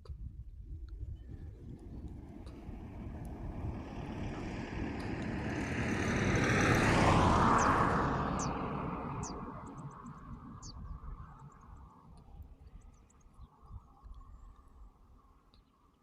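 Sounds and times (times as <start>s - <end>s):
vehicle passing by: 1.3s - 11.8s.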